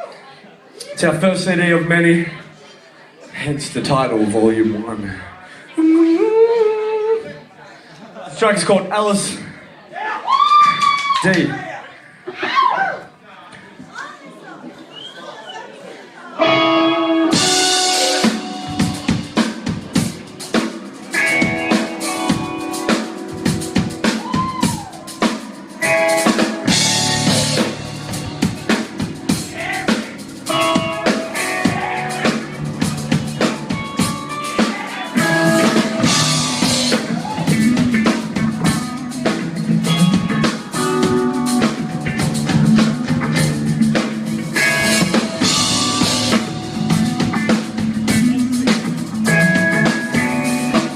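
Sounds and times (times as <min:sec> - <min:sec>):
electric guitar: 0:16.4 - 0:50.9
live rock band playing: 0:16.4 - 0:50.9
drum kit snare and bass drum: 0:17.4 - 0:50.9.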